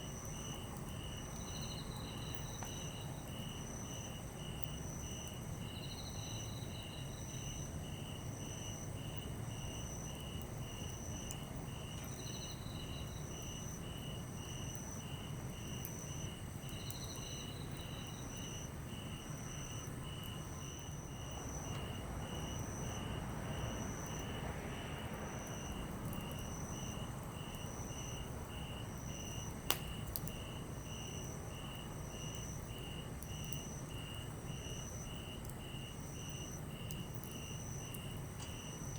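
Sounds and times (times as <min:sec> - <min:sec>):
campfire crackling: 0:00.0 - 0:05.7, 0:07.4 - 0:38.9
crickets chirping: 0:00.0 - 0:38.9
sharp pop from fire: 0:29.7 - 0:30.4.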